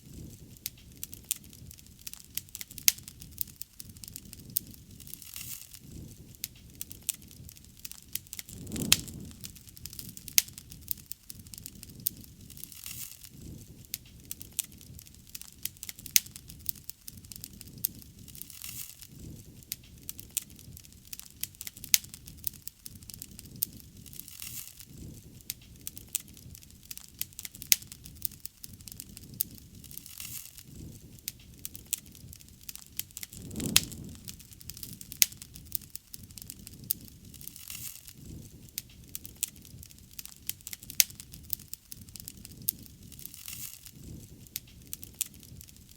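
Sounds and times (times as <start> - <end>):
bonfire crackling and popping: 0.0 - 45.9
low rush of flame: 5.9 - 15.1, 30.7 - 45.7
fire whoosh: 8.2 - 11.0, 33.0 - 36.5.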